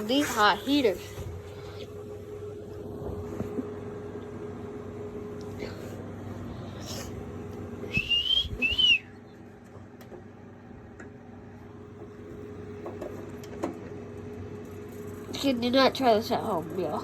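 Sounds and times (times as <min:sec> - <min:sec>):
steady low hum: 0:00.0 - 0:17.0
short whistles: 0:07.9 - 0:09.3.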